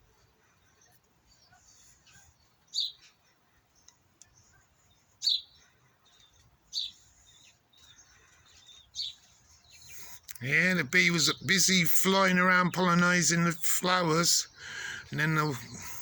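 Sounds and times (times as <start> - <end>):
small bird chirping: 0.1 - 16.0.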